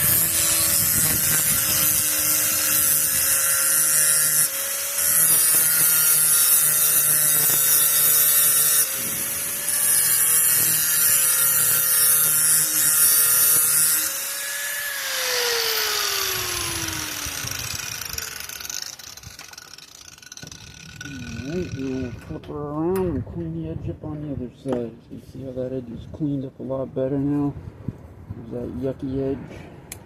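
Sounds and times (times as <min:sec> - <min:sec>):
grinder winding down whine: 0:00.0 - 0:22.3
electric grinder grinding metal: 0:00.0 - 0:22.4.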